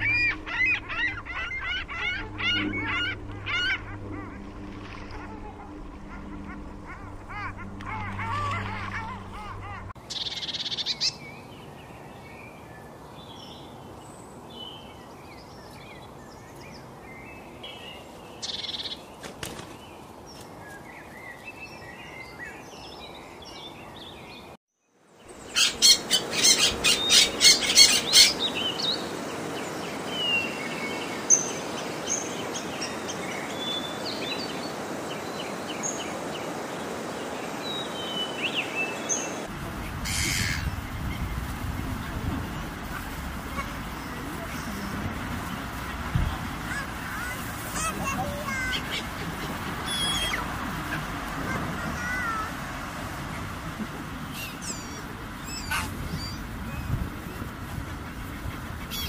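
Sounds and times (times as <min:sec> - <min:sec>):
sharp rapid bird calls: 0:00.0 - 0:11.2, 0:25.4 - 0:29.2
birds chirping: 0:00.0 - 0:59.0.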